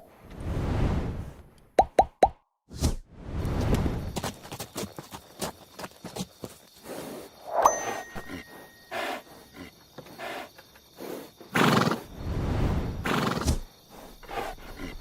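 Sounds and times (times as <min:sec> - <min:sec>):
hooves clicking: 0:03.7 - 0:07.3
horse breathy snorts: 0:08.2 - 0:12.1, 0:13.0 - 0:15.0.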